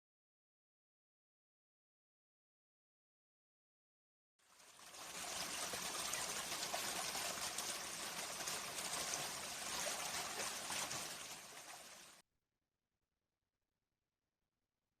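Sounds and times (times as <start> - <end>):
stream babbling: 4.5 - 12.2.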